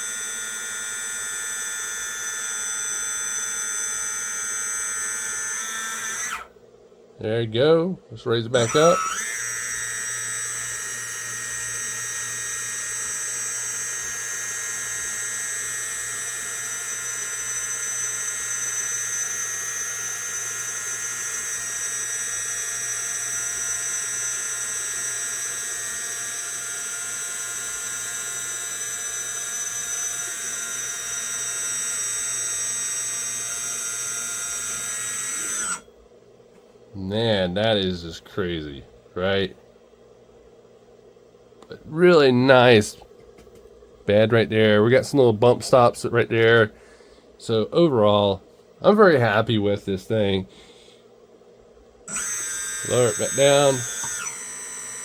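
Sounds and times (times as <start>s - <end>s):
electric pump motor whining: 0.0s - 6.5s, 8.6s - 35.9s, 52.1s - 55.0s.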